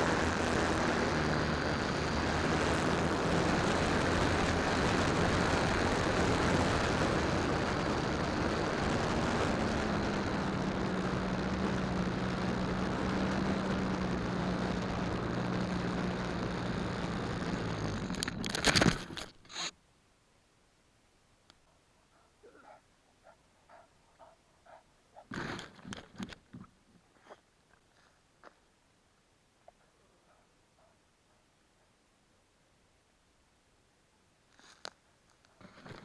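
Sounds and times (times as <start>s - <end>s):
model airplane motor drone: 0.0s - 19.7s.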